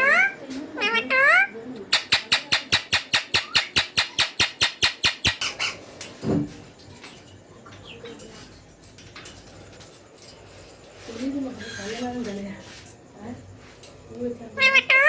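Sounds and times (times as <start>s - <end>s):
parakeet chicks begging calls: 0.0s - 5.8s, 14.6s - 15.0s.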